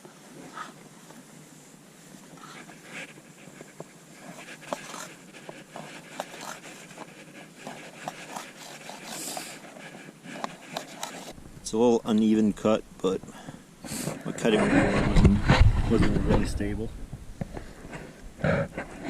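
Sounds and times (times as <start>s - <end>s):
knife scraping: 4.2s - 11.4s.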